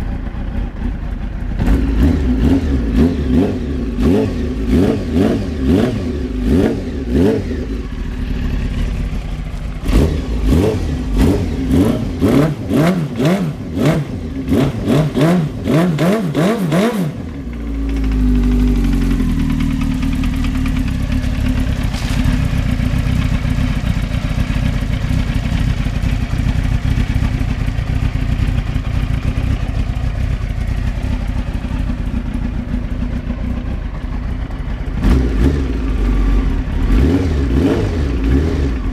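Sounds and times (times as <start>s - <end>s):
motorcycle engine idling: 0.0s - 16.0s, 17.1s - 38.9s
motorcycle engine revving: 0.0s - 38.9s.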